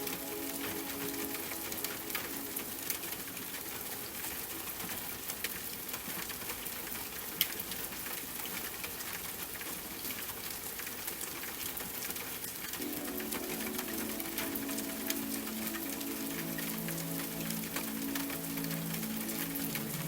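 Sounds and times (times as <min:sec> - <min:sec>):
soft sustained music: 0:00.0 - 0:04.1, 0:12.8 - 0:20.0
steady rain hiss: 0:00.0 - 0:20.0.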